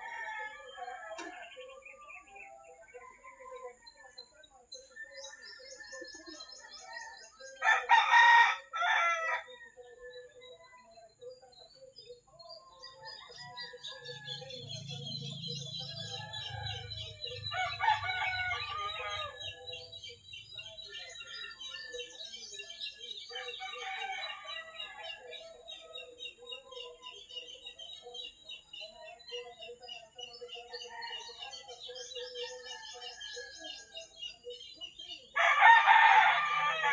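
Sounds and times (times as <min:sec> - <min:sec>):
small birds chirping: 0:00.0 - 0:36.9
rooster crowing: 0:07.2 - 0:09.6, 0:16.0 - 0:19.7, 0:35.4 - 0:36.9.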